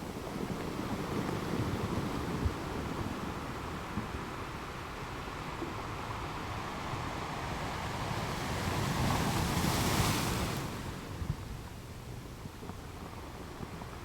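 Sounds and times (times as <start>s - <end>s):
ocean waves breaking: 0.0s - 11.2s.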